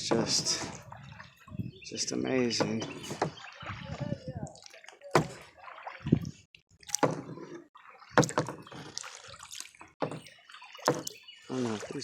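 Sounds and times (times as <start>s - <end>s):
kayak paddles dipping into water: 0.0s - 12.0s
water splashing and dripping: 0.0s - 12.0s.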